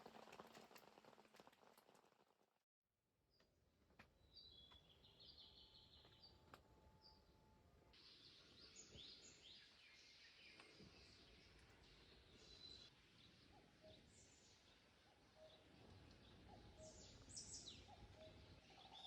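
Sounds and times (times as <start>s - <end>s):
small birds chirping and trilling: 4.2s - 6.4s, 8.0s - 19.0s.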